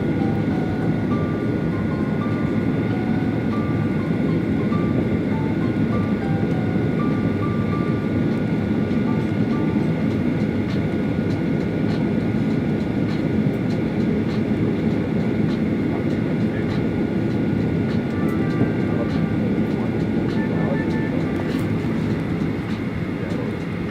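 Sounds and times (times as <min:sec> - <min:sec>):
jet engines rumbling in cabin: 0:00.0 - 0:23.9.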